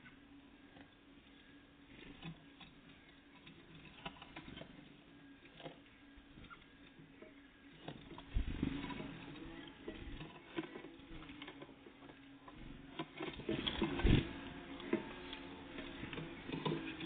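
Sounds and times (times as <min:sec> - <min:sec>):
birds pecking at feeder: 0:00.0 - 0:17.0
birds thumping on feeder: 0:05.6 - 0:17.0.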